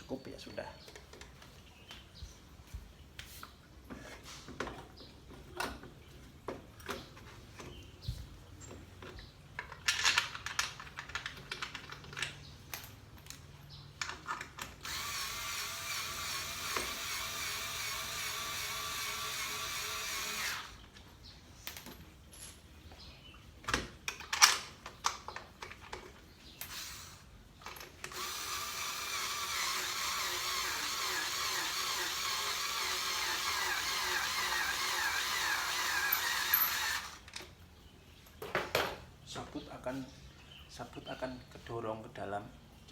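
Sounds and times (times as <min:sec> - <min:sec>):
clicks and knocks of tool handling: 0:08.6 - 0:14.8, 0:23.6 - 0:26.8
electric drill whining: 0:14.8 - 0:20.8, 0:26.6 - 0:27.3, 0:28.1 - 0:37.3.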